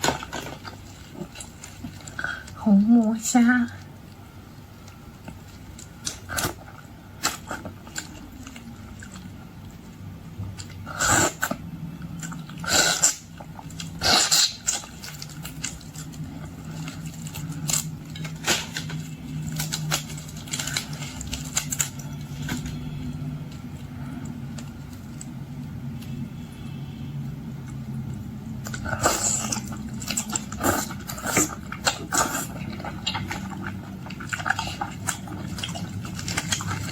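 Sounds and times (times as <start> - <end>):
low steady hum: 0.0 - 36.9.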